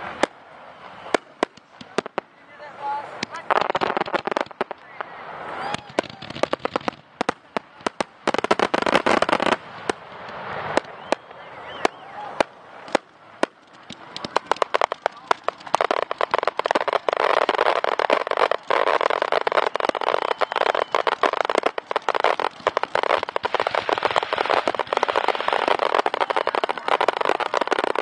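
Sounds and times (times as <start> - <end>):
fireworks bangs and crackle: 0.0 - 28.0.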